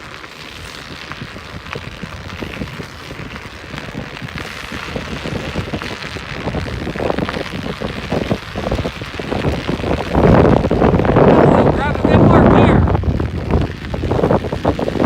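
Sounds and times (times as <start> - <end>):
tyres crackling on snow and ice: 0.0 - 15.0
wind buffeting microphone: 0.0 - 15.0.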